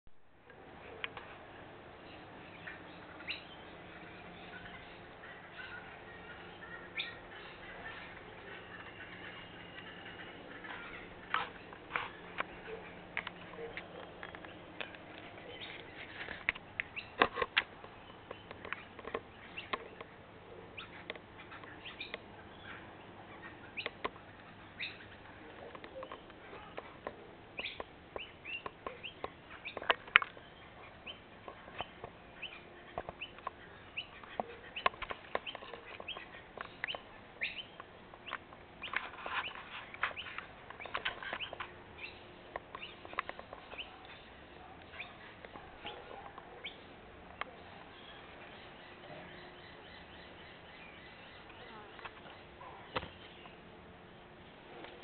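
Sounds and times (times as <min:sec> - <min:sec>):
faint background noise: 0:00.1 - 0:55.0
bird chirps: 0:02.0 - 0:55.0.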